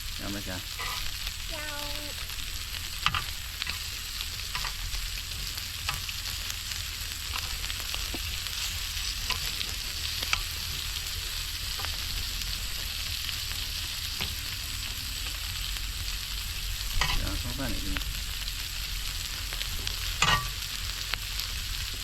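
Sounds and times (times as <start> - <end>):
meat sizzling in a pan: 0.0 - 22.0.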